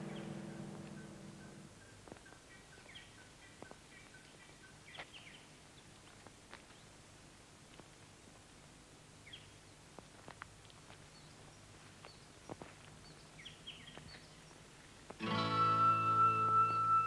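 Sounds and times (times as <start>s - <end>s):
bird chirps: 0.0s - 5.4s.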